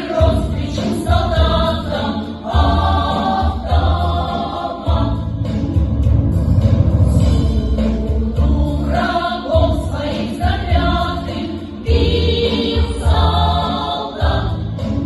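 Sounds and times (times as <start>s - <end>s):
folk ensemble singing in chorus: 0.0s - 6.1s, 7.2s - 15.0s
instrumental accompaniment with bass: 0.0s - 15.0s.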